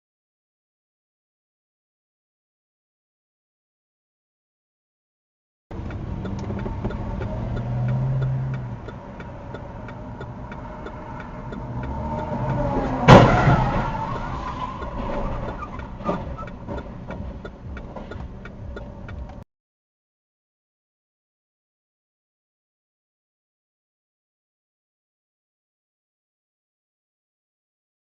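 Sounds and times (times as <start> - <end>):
regular ticking: 5.7 - 19.4
car engine and road noise: 5.7 - 19.5
loud crash impact: 13.0 - 14.1.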